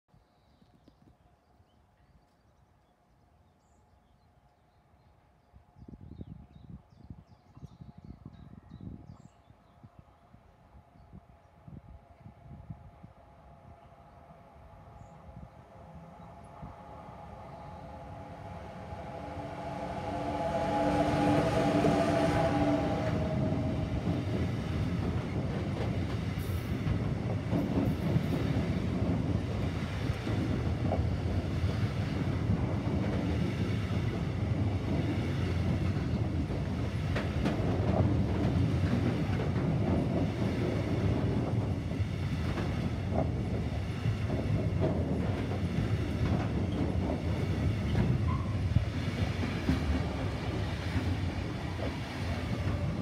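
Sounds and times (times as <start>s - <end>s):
locomotive humming: 12.8s - 53.0s
wagon wheels rumbling on rail: 16.3s - 53.0s.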